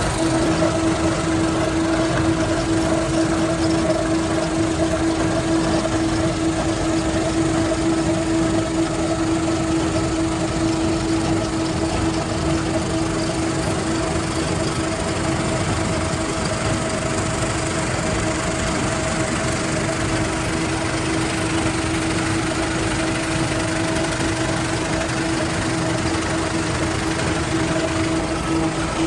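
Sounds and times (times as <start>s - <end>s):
factory machinery humming: 0.0s - 29.0s.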